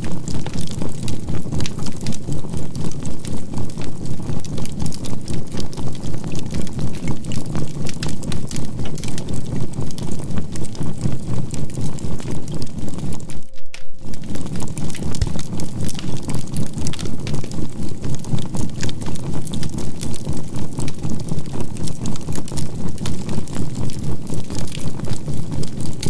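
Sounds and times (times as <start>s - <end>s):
charcoal fire crackling: 0.0s - 26.0s
steady sine tone: 13.2s - 14.9s
low pulsing drone: 13.2s - 17.5s.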